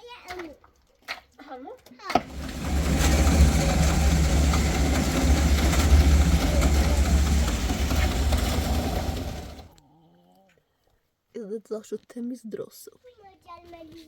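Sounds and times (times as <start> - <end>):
engine running with deep hum: 2.2 - 9.8.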